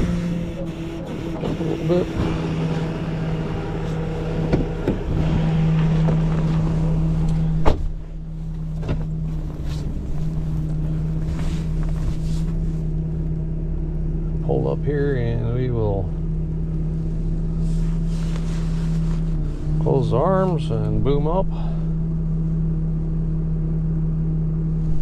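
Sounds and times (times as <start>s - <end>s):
hydraulic pump humming: 0.0s - 14.7s
truck engine running: 0.0s - 25.0s.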